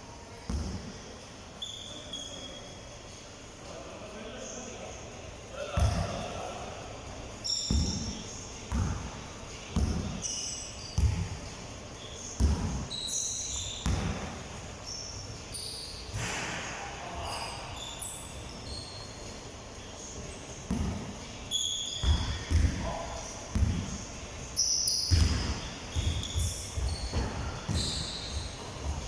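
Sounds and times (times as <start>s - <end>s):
basketball bouncing on court: 0.5s - 0.9s, 5.8s - 6.2s, 7.6s - 9.1s, 9.7s - 10.4s, 11.0s - 11.4s, 12.4s - 12.9s, 13.6s - 14.4s, 20.7s - 21.1s, 22.0s - 22.9s, 23.5s - 24.0s, 25.1s - 29.0s
short high squeaks: 1.6s - 2.9s, 7.4s - 7.7s, 10.2s - 11.0s, 11.9s - 13.9s, 14.8s - 19.4s, 21.5s - 22.5s, 24.6s - 28.7s.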